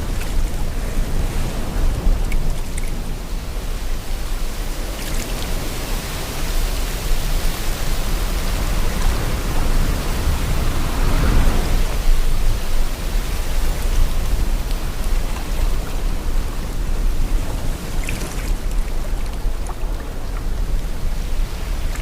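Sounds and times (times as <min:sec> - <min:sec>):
wind blowing: 0:00.0 - 0:22.0
sea water washing: 0:04.4 - 0:22.0.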